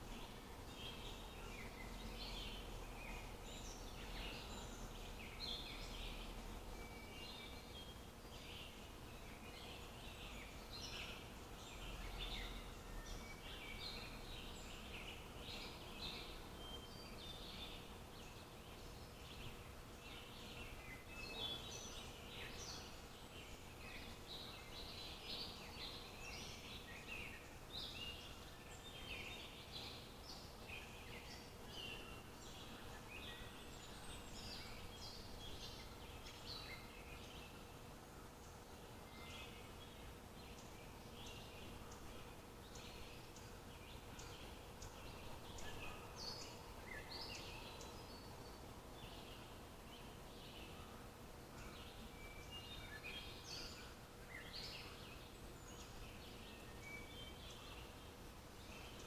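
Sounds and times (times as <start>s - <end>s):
faint background hum: 0.0s - 59.0s
small birds chirping: 0.0s - 59.0s.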